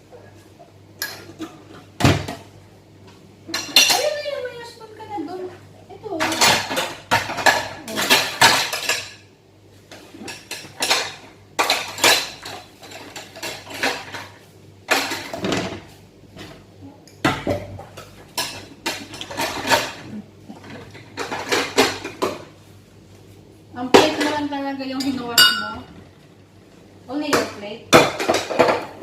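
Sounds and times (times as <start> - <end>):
plate and spoon clinking: 25.0 - 25.9.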